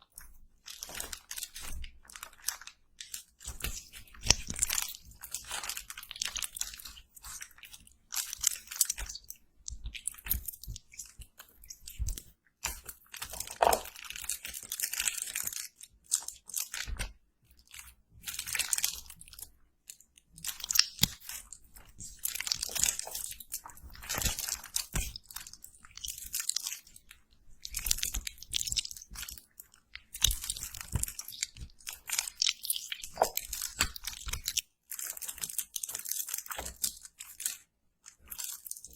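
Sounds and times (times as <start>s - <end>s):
crunchy chewing and biting: 30.1s - 37.6s.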